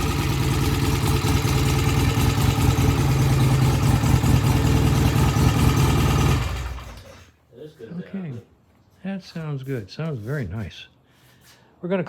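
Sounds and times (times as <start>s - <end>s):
motorcycle engine idling: 0.0s - 7.1s.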